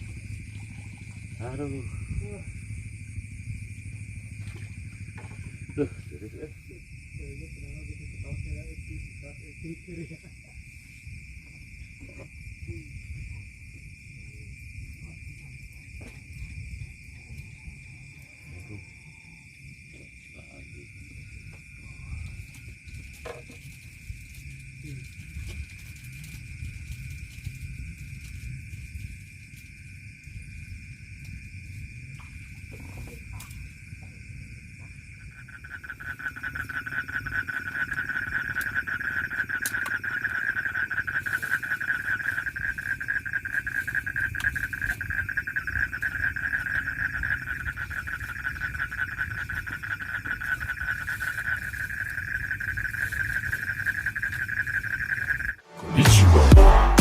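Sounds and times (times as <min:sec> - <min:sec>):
steady high trill: 0:55.6 - 0:57.0.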